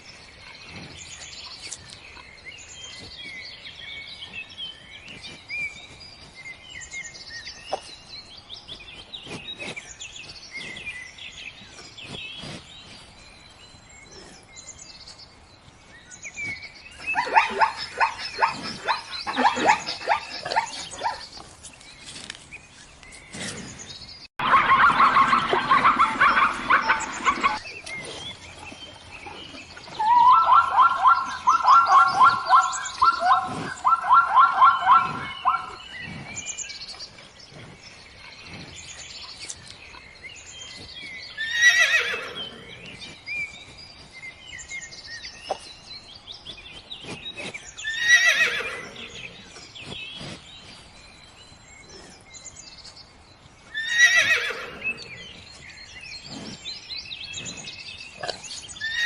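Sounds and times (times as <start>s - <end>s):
horse whinnying: 41.4s - 42.6s, 47.9s - 49.0s, 53.8s - 55.0s, 58.8s - 59.0s.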